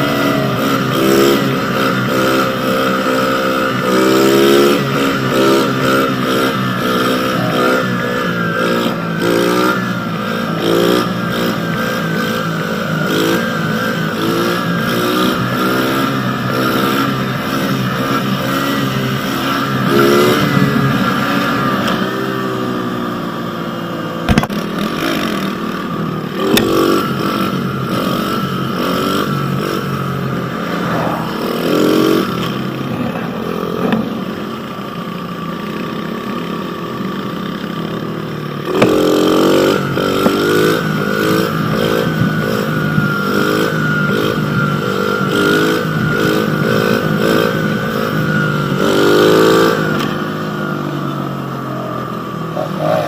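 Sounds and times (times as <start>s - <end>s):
pit bike engine revving: 0.0s - 53.0s.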